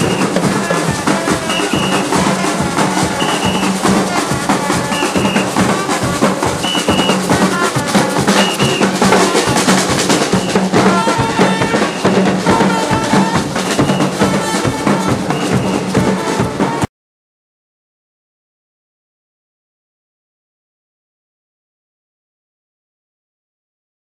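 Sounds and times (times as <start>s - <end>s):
drums beating fast rhythm: 0.0s - 16.9s
short held instrument notes: 0.0s - 16.9s.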